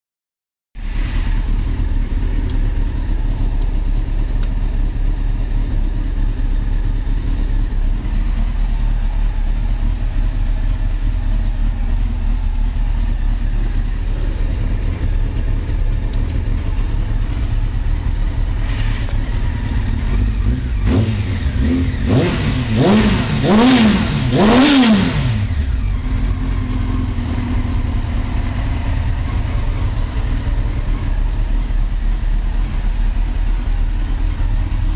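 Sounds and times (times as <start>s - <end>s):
motorcycle engine idling and revving: 0.8s - 34.9s.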